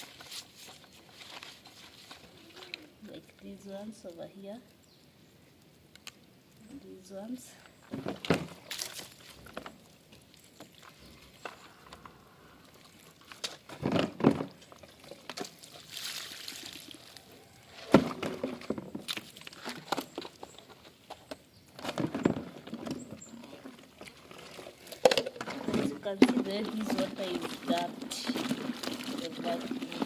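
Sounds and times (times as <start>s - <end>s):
water splashing: 8.2s - 20.2s, 22.5s - 30.0s.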